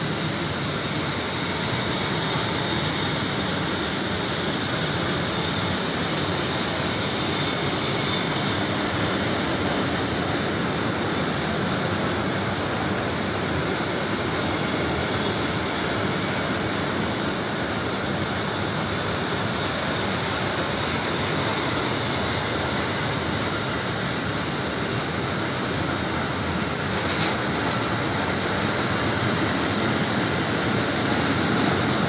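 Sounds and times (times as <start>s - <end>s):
train wheels on rails: 0.0s - 32.0s.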